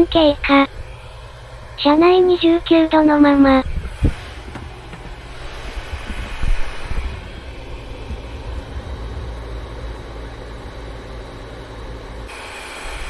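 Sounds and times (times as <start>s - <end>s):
compressor low hum: 0.0s - 13.0s
cooler fan air rushing: 0.0s - 13.0s
soft low knocks: 3.7s - 12.3s.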